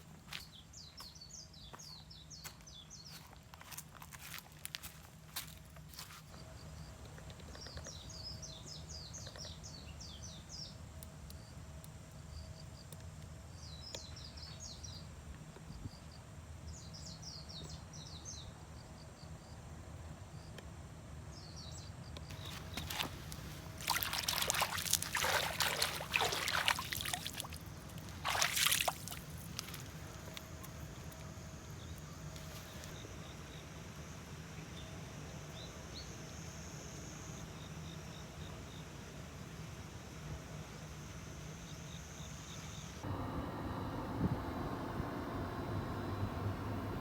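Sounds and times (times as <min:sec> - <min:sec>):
birds chirping: 0:22.3 - 0:33.4
steady low hum: 0:22.3 - 0:47.0
liquid being poured: 0:22.5 - 0:30.0.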